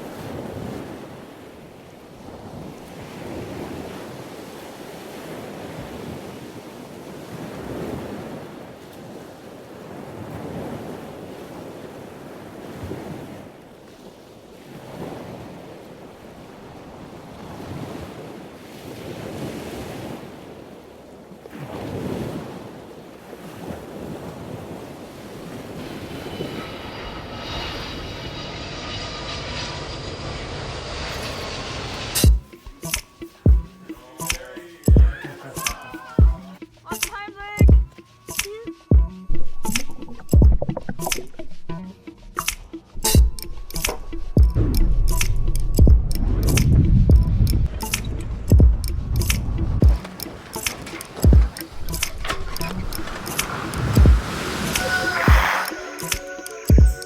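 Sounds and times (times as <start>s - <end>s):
wind on microphone: 0.0s - 34.0s, 38.9s - 57.0s
sea waves washing in: 0.0s - 57.0s
music with steady tones: 32.2s - 40.7s, 41.8s - 46.1s, 54.8s - 57.0s.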